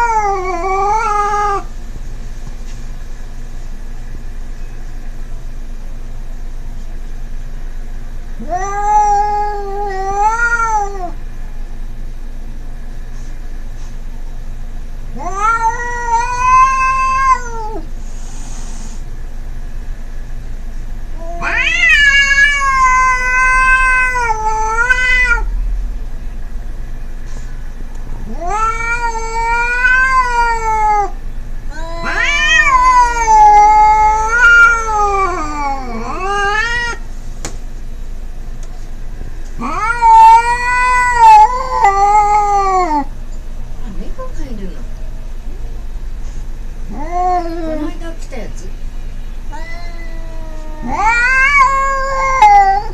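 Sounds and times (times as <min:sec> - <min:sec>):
cats yowling: 0:00.0 - 0:01.7, 0:08.4 - 0:11.2, 0:15.1 - 0:17.9, 0:21.2 - 0:25.7, 0:28.2 - 0:37.1, 0:39.6 - 0:43.2, 0:46.9 - 0:48.0, 0:49.4 - 0:52.9.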